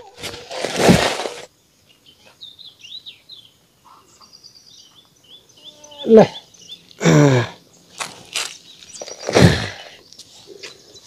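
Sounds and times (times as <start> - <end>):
small bird chirping: 1.8 - 7.0, 7.6 - 11.0
person exclaiming: 6.0 - 6.4.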